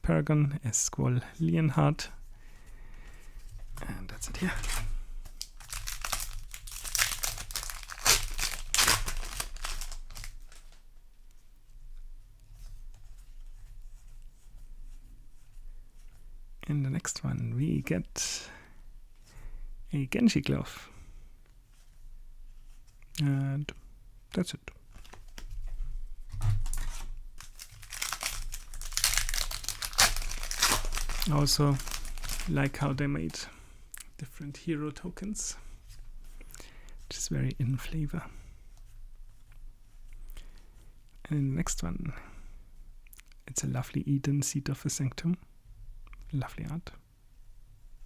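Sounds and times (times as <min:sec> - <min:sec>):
foil wrapper crinkling and tearing: 0:04.2 - 0:10.8, 0:26.6 - 0:33.0.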